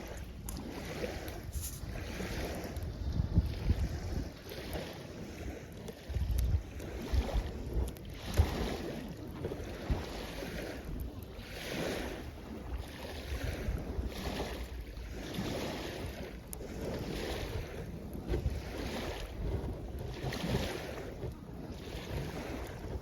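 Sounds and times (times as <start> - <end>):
small waves washing on shore: 0.0 - 23.0
wind rumbling on microphone: 0.0 - 23.0.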